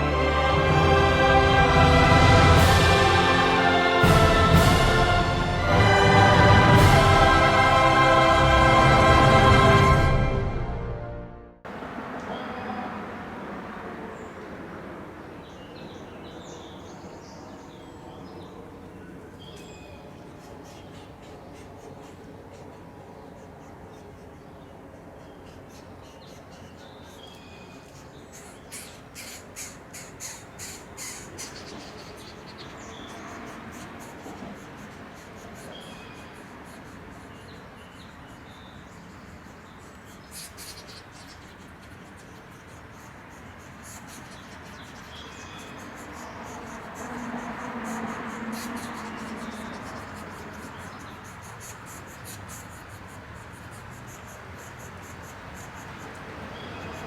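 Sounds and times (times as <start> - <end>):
birds calling: 15.6 - 57.0.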